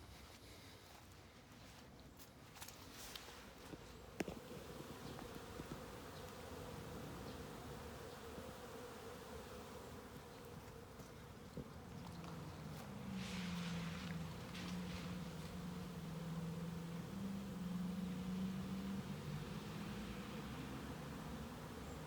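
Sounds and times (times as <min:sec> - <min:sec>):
bees humming: 0:04.2 - 0:22.0
low loud buzz: 0:11.6 - 0:22.0.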